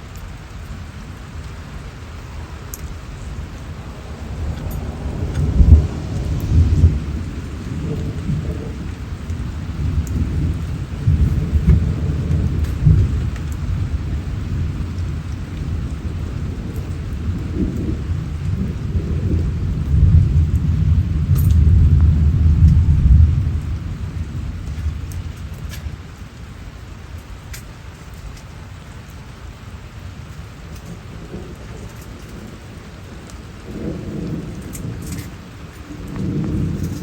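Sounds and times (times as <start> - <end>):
steady rain: 0.0 - 37.0
thunder rumbling: 0.0 - 37.0.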